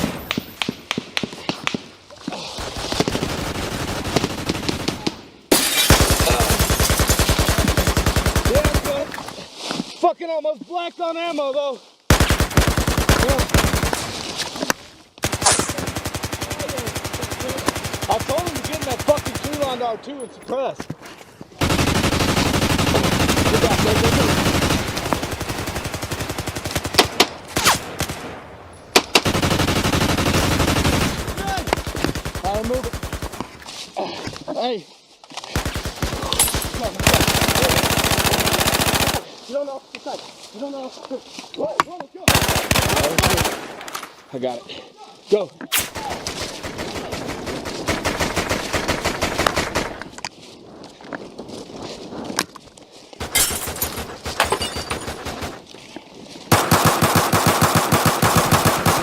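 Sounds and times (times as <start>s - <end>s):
machine gun firing bursts: 2.6s - 5.1s, 5.9s - 9.1s, 12.1s - 14.2s, 15.2s - 19.8s, 21.6s - 28.2s, 29.1s - 33.4s, 35.6s - 39.2s, 42.3s - 43.8s, 46.0s - 50.0s, 53.2s - 55.6s, 56.5s - 59.0s
gunshots: 2.6s - 9.3s, 12.1s - 14.4s, 15.2s - 20.0s, 21.6s - 33.6s, 35.5s - 39.3s, 42.3s - 44.1s, 56.5s - 59.0s
close automatic gunfire: 5.9s - 9.0s, 12.1s - 14.1s, 21.6s - 28.2s, 29.1s - 33.4s, 35.6s - 39.2s, 42.3s - 43.8s, 46.2s - 50.0s, 56.5s - 59.0s.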